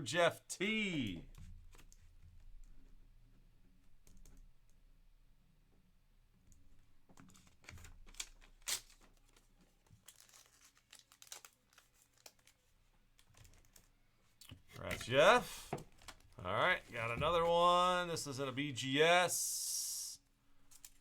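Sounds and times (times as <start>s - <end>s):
crinkling rustles of cards: 7.0s - 18.6s, 20.5s - 21.0s.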